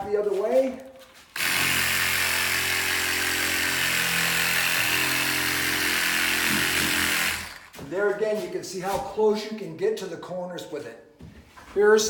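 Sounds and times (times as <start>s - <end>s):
power saw sanding drywall: 1.3s - 8.6s.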